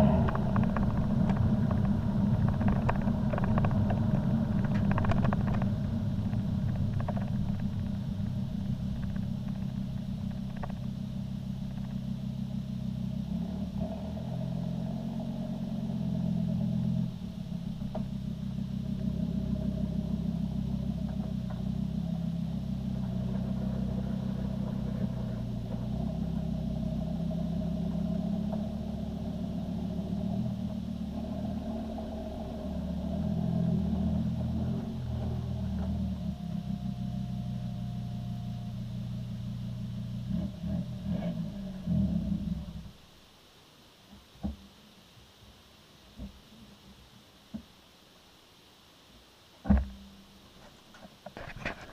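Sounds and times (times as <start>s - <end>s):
low diesel exhaust drone: 0.0s - 51.9s.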